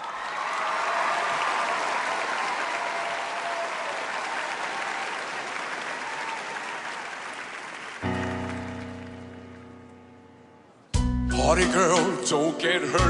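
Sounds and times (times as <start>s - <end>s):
audience applauding and cheering: 0.0s - 9.8s.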